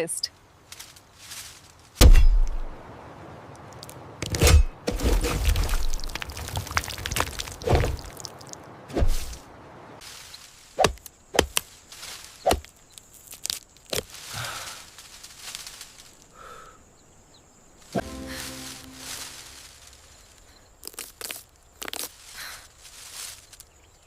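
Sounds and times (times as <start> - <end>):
outdoor background noise: 0.0 - 24.0
sharp knocks: 2.0 - 2.7.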